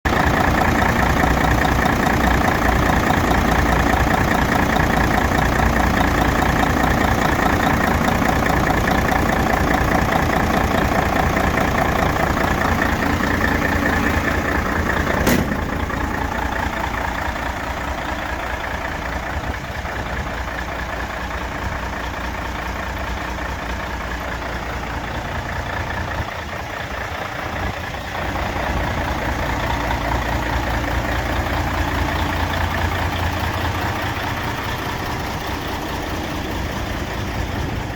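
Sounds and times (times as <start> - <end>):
diesel truck engine idling: 0.0 - 37.9
sharp click: 15.2 - 15.8.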